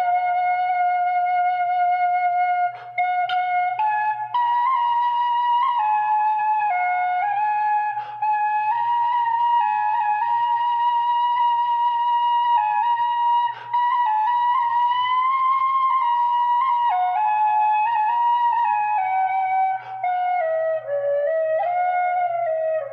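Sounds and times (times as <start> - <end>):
flute playing slow melody: 0.0 - 22.9
short breaths: 2.7 - 3.0, 7.9 - 8.3, 13.5 - 13.8, 19.8 - 20.0.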